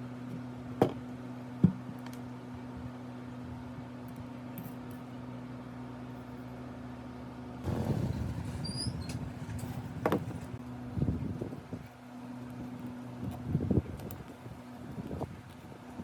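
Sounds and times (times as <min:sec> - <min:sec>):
electrical hum: 0:07.6 - 0:11.8
short high squeaks: 0:07.7 - 0:10.6.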